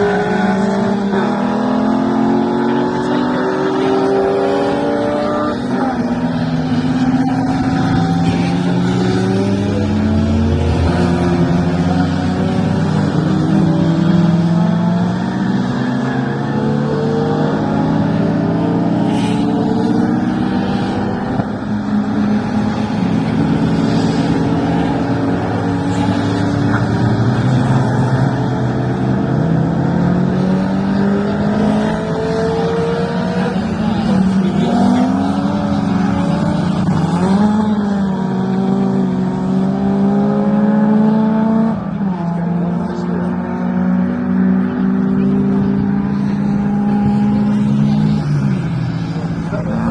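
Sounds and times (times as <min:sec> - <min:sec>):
racing car engines passing: 0:00.0 - 0:49.9.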